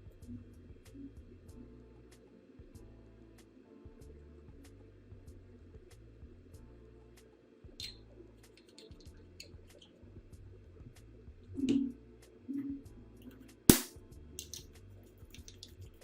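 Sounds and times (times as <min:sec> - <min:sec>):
soft background music: 0:00.0 - 0:16.0
sharp loud click: 0:13.7 - 0:14.0.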